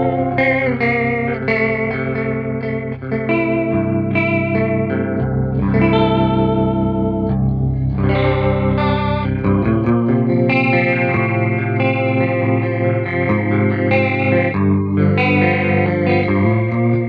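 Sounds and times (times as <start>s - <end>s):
electric guitar chords with chorus: 0.0s - 17.0s.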